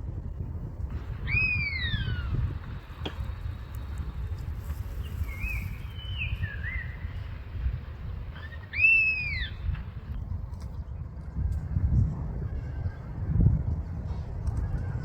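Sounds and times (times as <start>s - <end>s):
wind on microphone: 0.0s - 15.0s
bird chirps: 1.1s - 2.5s, 4.8s - 7.6s, 8.3s - 9.9s
bird whistled call: 1.1s - 2.6s, 4.9s - 7.4s, 8.3s - 9.8s.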